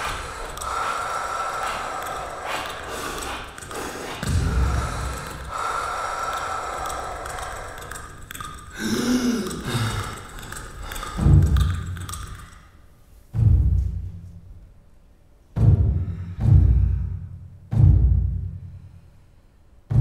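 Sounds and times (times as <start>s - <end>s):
deep booming drum hits: 13.4s - 14.1s, 15.6s - 18.6s.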